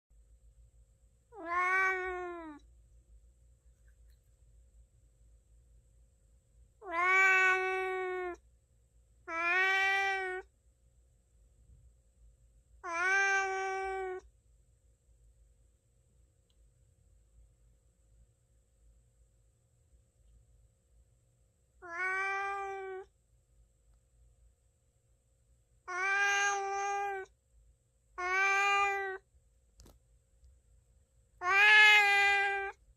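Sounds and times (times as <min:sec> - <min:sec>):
cat meowing: 0:01.3 - 0:02.6, 0:06.8 - 0:08.4, 0:09.3 - 0:10.5, 0:12.8 - 0:14.2, 0:21.8 - 0:23.1, 0:25.9 - 0:27.3, 0:28.2 - 0:29.2, 0:31.4 - 0:32.8
faint click: 0:16.4 - 0:16.7.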